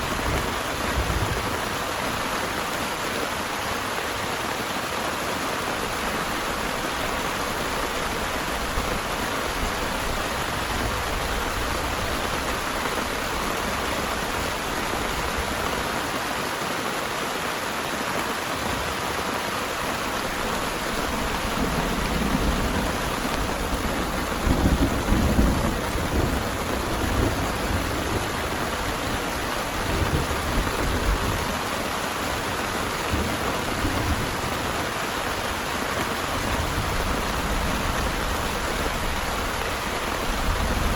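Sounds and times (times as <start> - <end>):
heavy rain: 0.0 - 40.9
thunder rumbling: 20.0 - 31.7.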